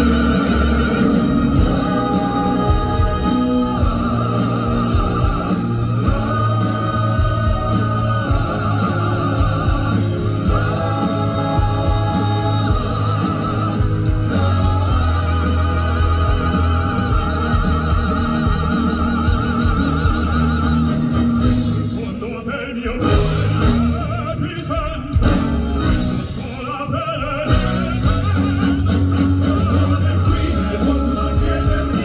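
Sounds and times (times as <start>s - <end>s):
band accompaniment: 0.0s - 32.0s
vocal group singing: 0.0s - 32.0s.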